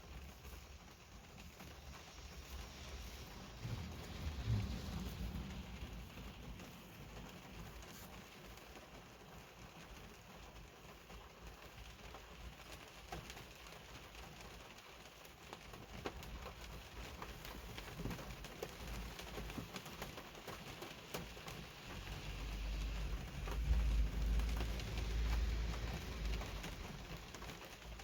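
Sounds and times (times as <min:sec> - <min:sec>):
heavy rain falling: 0:00.0 - 0:28.0
low rumble: 0:01.7 - 0:07.3, 0:21.6 - 0:28.0.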